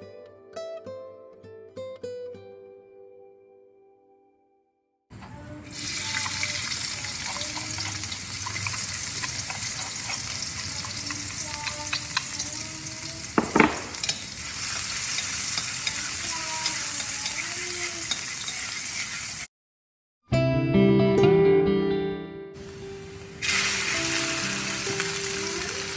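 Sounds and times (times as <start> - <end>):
food sizzling in hot oil: 5.7 - 19.5, 22.6 - 25.9
utensil clacking against pan: 6.1 - 18.7.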